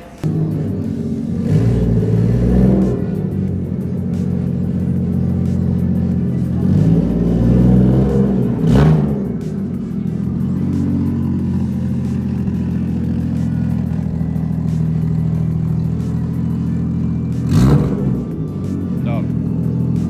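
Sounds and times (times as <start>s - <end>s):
car engine running steadily: 0.0s - 20.0s.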